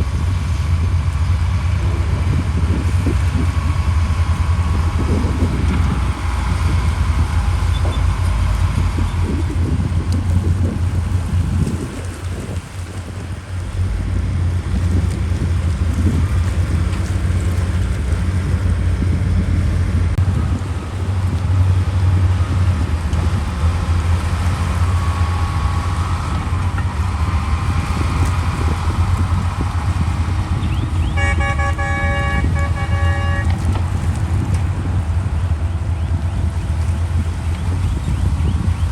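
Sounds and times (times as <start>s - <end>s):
heavy machinery engine rumble: 0.0s - 38.9s
vehicle horn short toots: 31.0s - 33.9s.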